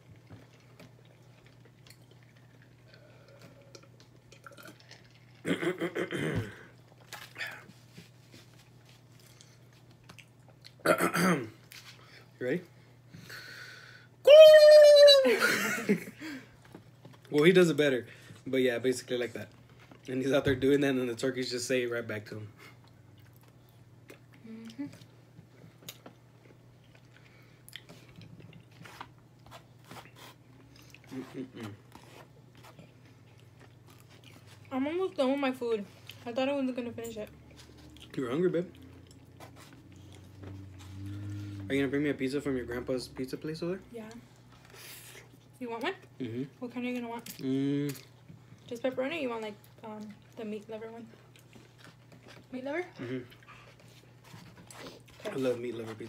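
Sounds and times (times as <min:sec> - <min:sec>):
person chewing food: 0:00.0 - 0:05.5, 0:06.7 - 0:10.8, 0:22.7 - 0:34.7, 0:37.2 - 0:41.8, 0:51.1 - 0:56.0.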